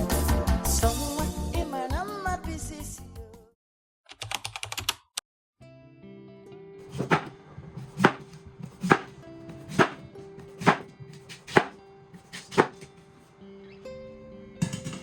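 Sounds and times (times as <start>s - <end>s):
knife chopping on cutting board: 6.9s - 13.0s.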